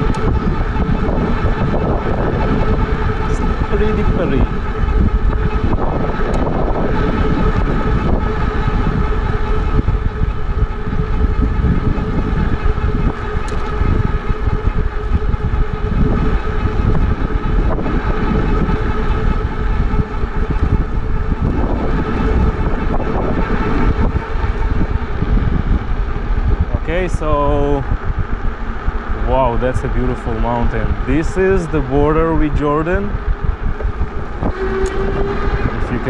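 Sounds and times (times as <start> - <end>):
electric motor whine: 0.0 - 26.7, 27.3 - 36.0
wind buffeting microphone: 0.0 - 36.0.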